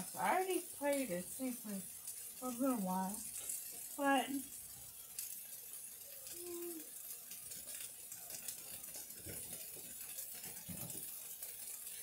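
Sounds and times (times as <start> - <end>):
skewers sizzling on a griddle: 0.0 - 12.0
kitchen clicks and knocks: 9.2 - 11.2.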